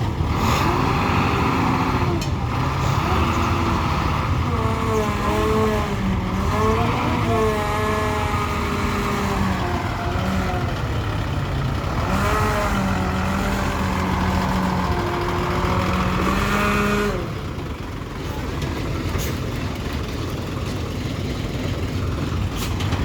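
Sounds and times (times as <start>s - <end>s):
heavy vehicle engine revving: 0.0s - 23.0s.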